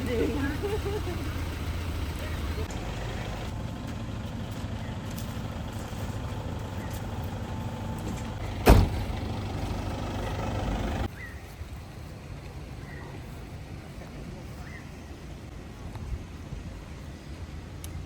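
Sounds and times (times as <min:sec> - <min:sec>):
vehicle engine idling: 0:00.0 - 0:11.1
sharp bang: 0:08.6 - 0:09.2.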